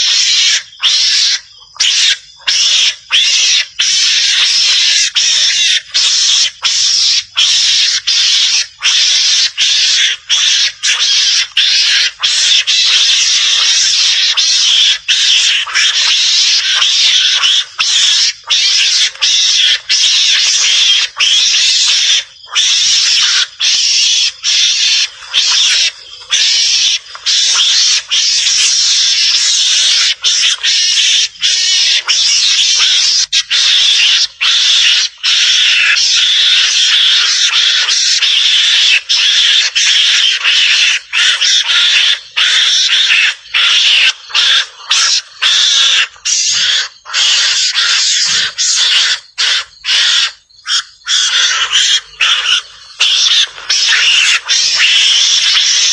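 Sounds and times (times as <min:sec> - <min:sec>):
mongoose screeching chatter: 0:00.0 - 0:55.9.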